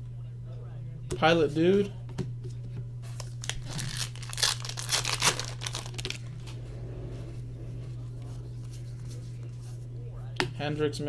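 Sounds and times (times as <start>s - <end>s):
low electrical hum: 0.0s - 11.0s
foil wrapper crinkling and tearing: 3.2s - 6.6s.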